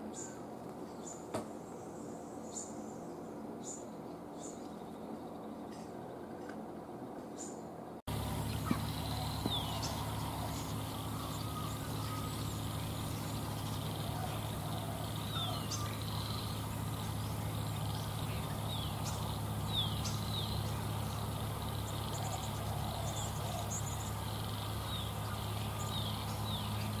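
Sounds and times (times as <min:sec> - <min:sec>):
small birds chirping: 0:00.0 - 0:27.0
steady low hum: 0:07.8 - 0:27.0.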